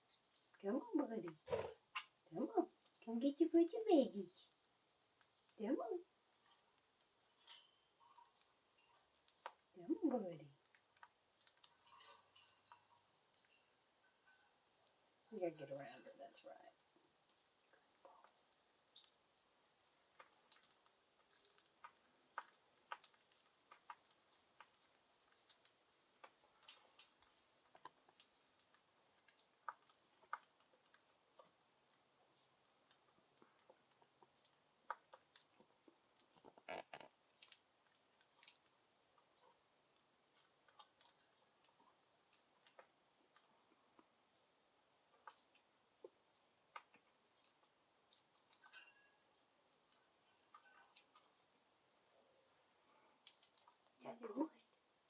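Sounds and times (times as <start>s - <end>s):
beak clicks and taps: 17.4s - 39.3s, 53.1s - 53.9s.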